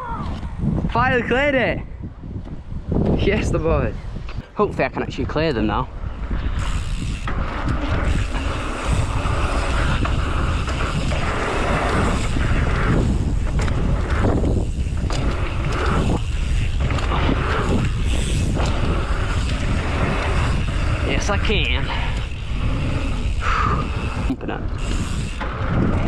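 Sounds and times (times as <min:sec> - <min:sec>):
wind buffeting microphone: 0:00.0 - 0:26.0
bike tyres rumbling: 0:02.0 - 0:26.0.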